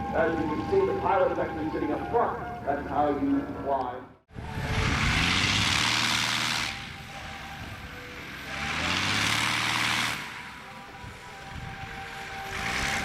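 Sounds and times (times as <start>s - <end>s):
propeller airplane passing: 4.3s - 13.0s.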